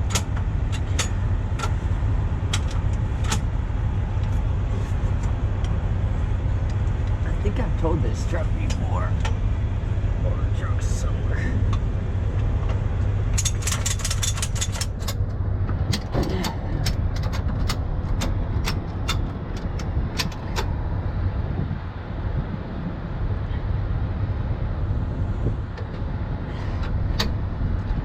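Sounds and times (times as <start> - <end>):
diesel truck engine idling: 0.0 - 28.0
sharp metallic clicks: 12.4 - 20.8.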